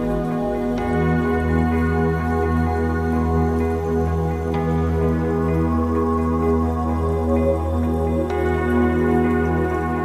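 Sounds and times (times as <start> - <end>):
ambient meditation music: 0.0 - 10.0.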